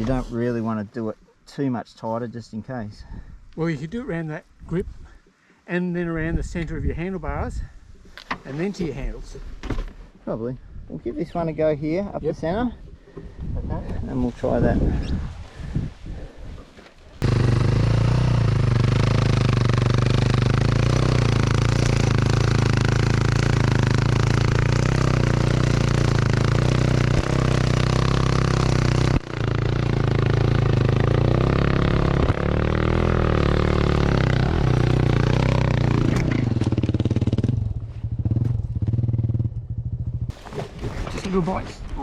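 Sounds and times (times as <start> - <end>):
dirt bike engine at low revs: 17.2 - 41.4.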